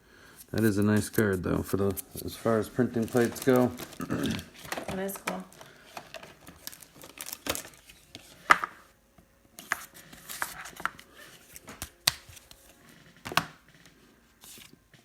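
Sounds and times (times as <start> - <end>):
packaging rustling: 0.4 - 8.8, 9.6 - 13.5
card clicks and taps: 11.6 - 12.5.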